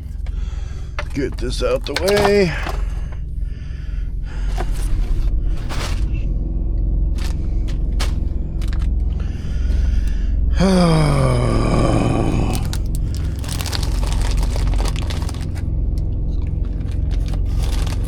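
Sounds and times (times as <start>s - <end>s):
power unit humming: 0.0s - 18.0s
clicks and knocks of handling: 1.0s - 3.3s
man's falling vocal sound: 10.5s - 12.8s.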